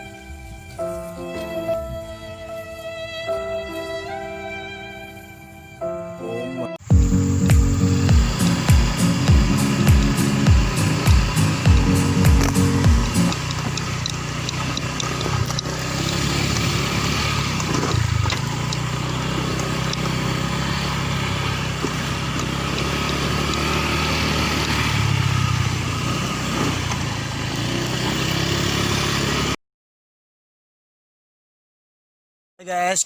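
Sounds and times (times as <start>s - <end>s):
motorcycle engine running: 6.8s - 29.6s.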